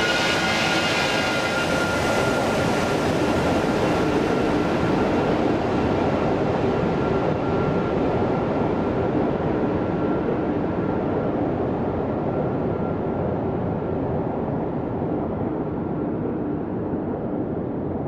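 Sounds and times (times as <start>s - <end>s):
jet engines rushing: 0.0s - 6.6s
faint jet engine whine: 0.0s - 18.0s.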